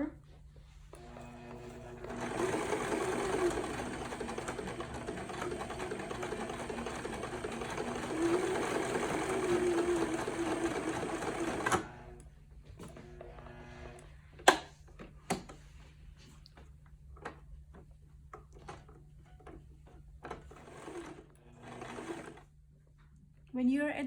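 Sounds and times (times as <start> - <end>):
electric sewing machine stitching: 1.0 - 12.3, 12.9 - 14.0, 20.2 - 22.5.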